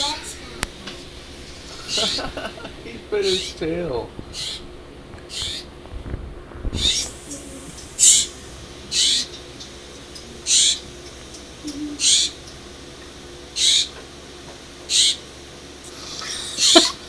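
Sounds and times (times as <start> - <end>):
bird short high calls: 5.3 - 5.7.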